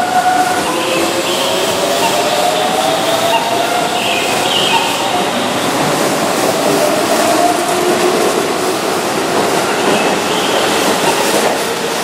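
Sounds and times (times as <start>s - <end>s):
wheel-on-rail noise: 0.0s - 12.0s.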